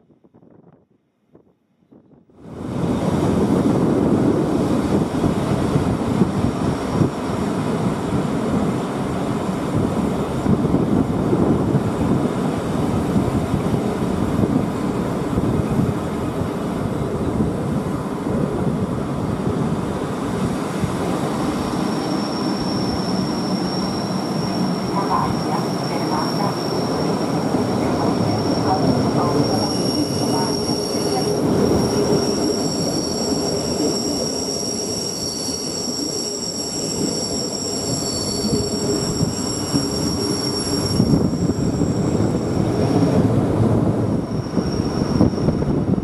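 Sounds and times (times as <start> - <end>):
wind on microphone: 0.2 - 8.7, 9.6 - 21.2, 38.4 - 46.0
train wheels rumbling on track: 2.5 - 46.0.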